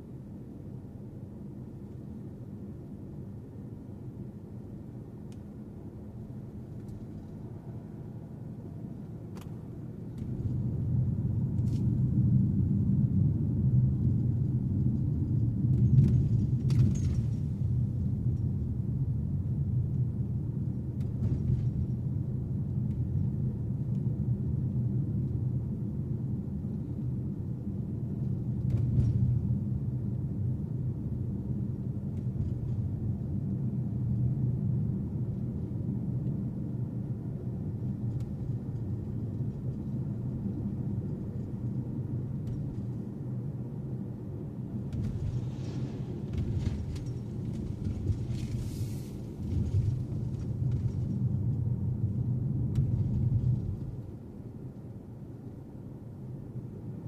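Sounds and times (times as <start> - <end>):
car engine and road rumble: 0.0 - 55.6
hiss: 48.6 - 49.2.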